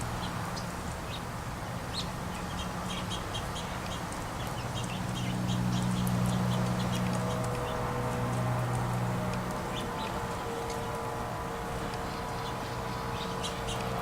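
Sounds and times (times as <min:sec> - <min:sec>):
songbirds chirping: 0:00.0 - 0:14.0.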